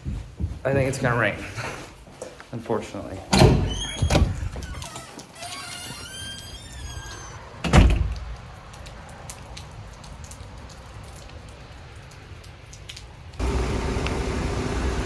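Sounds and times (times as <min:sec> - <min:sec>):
door shutting thud: 0:03.3 - 0:08.3.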